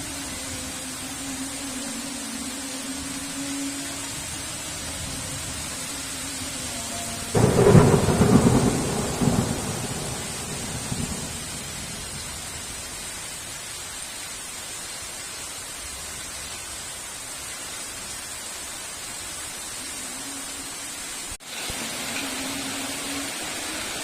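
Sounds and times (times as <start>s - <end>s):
heavy rain: 0.0s - 24.0s
thunder crack and rumble: 7.4s - 12.7s.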